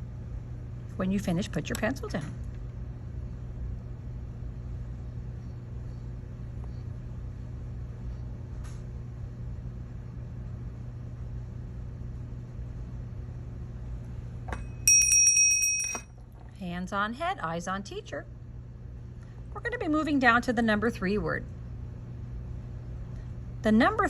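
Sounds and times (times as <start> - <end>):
low room hum: 0.0 - 24.0
small bell ringing: 14.5 - 16.2.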